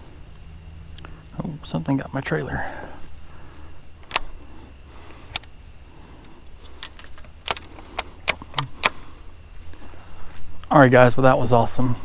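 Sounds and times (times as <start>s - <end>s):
faint high hum: 0.0s - 12.0s
sharp clicks and knocks: 4.0s - 4.4s, 6.6s - 9.0s.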